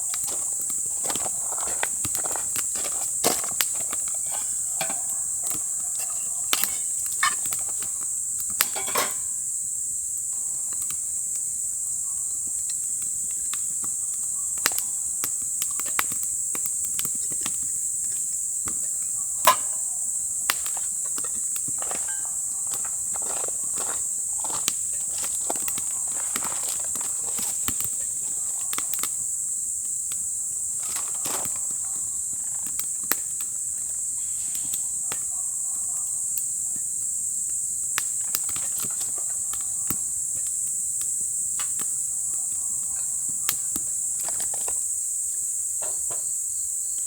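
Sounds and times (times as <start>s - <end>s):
crickets chirring: 0.0s - 47.0s.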